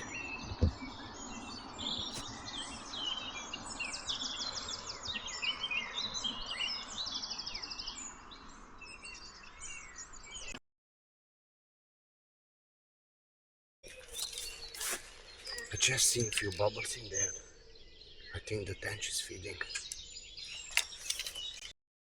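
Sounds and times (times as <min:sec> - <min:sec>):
songbirds singing: 0:00.0 - 0:10.6, 0:13.8 - 0:21.8
bird trills: 0:13.9 - 0:21.7.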